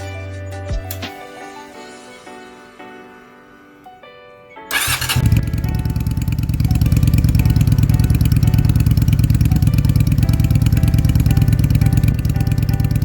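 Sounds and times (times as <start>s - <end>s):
motorcycle engine starting and idling: 4.7s - 13.0s.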